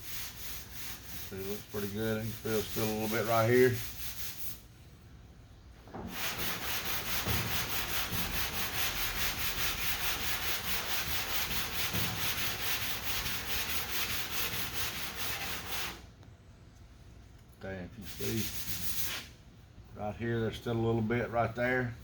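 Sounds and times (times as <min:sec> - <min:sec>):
sandpaper rubbing strokes: 0:00.0 - 0:04.6, 0:06.1 - 0:16.0, 0:18.0 - 0:19.3.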